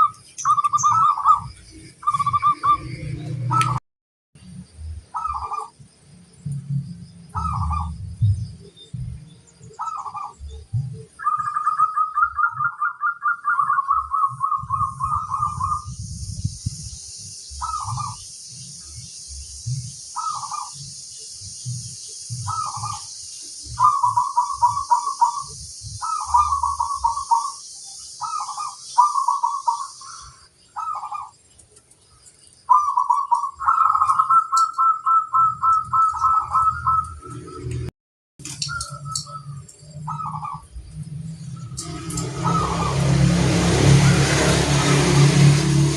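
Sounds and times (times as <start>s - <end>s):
dove cooing: 5.1s - 5.8s, 7.3s - 8.0s, 9.8s - 15.9s, 17.6s - 18.2s, 20.2s - 20.8s, 22.3s - 23.1s, 23.7s - 27.6s, 28.2s - 31.3s, 32.7s - 37.3s, 38.7s - 40.7s, 42.3s - 43.1s
steady high hiss: 15.6s - 30.8s.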